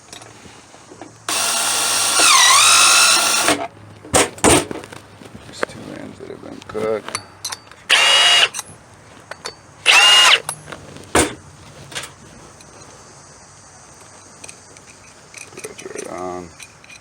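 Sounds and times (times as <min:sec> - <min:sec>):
rod cutter motor whine: 0:01.3 - 0:03.6, 0:07.9 - 0:08.5, 0:09.8 - 0:10.5.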